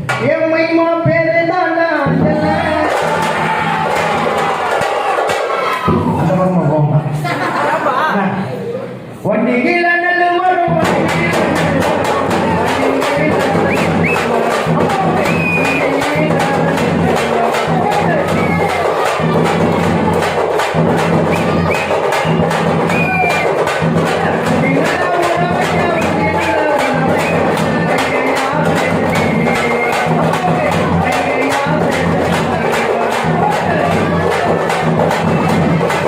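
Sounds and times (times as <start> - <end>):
frame drums beating: 2.0 - 6.4, 10.6 - 36.0
person singing: 10.2 - 19.9, 21.4 - 36.0.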